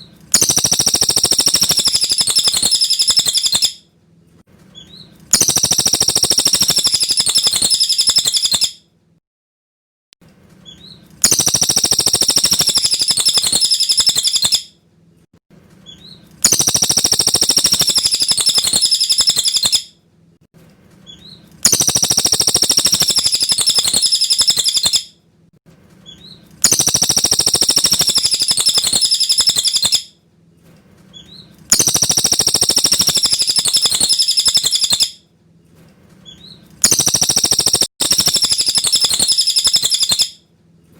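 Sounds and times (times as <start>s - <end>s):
bird singing high song phrases: 0.4s - 3.8s, 4.8s - 8.8s, 10.6s - 14.7s, 15.9s - 19.9s, 21.1s - 25.1s, 26.1s - 30.1s, 31.2s - 35.2s, 36.3s - 40.4s.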